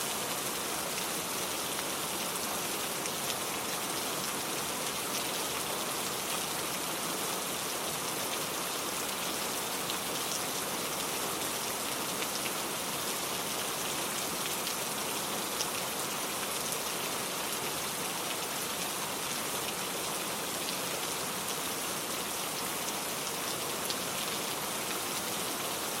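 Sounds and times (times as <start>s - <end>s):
raindrops ticking on a surface: 7.6s - 21.6s.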